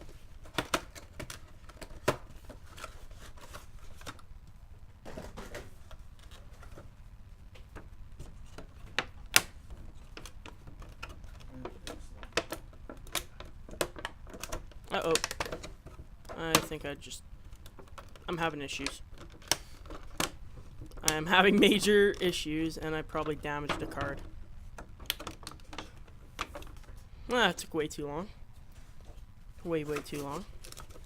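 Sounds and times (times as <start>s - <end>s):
sharp plastic snaps: 7.5s - 16.8s, 24.0s - 27.0s.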